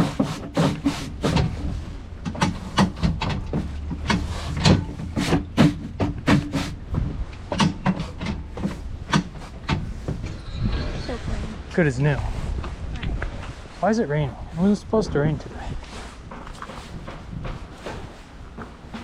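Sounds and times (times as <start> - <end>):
shoes being scrubbed: 0.0 - 1.4, 5.1 - 6.8
steady low rumble: 1.1 - 18.6.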